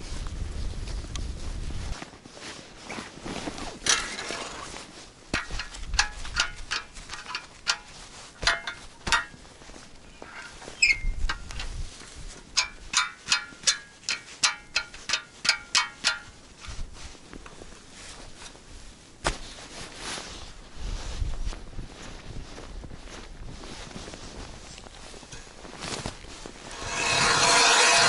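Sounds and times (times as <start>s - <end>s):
wind buffeting microphone: 0.0s - 2.0s, 10.8s - 12.9s, 20.7s - 28.0s
footsteps crunching in snow: 0.0s - 12.6s, 16.5s - 28.0s.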